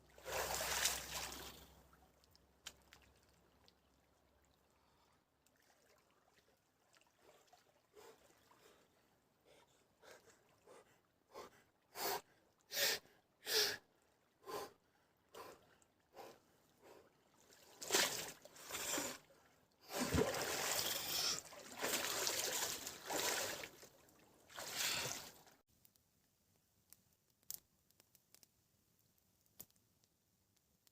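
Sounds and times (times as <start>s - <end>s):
splashing water: 0.2s - 1.7s, 19.9s - 25.6s.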